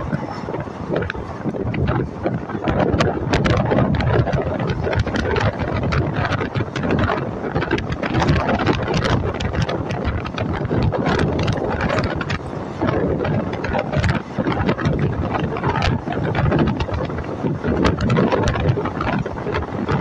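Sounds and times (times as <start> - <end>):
passenger train rumbling: 0.0 - 20.0
wind buffeting microphone: 0.0 - 20.0.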